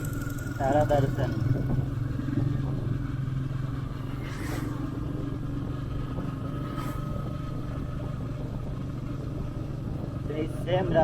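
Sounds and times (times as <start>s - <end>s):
motorcycle engine running: 0.0s - 11.0s
whooshes: 4.0s - 5.3s.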